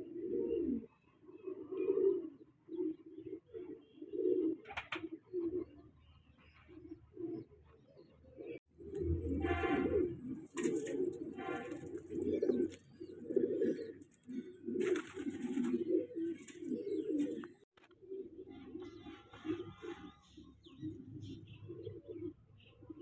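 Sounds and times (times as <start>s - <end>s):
pigeons cooing: 0.0s - 23.0s
squeaky pigeon calls: 0.2s - 23.0s.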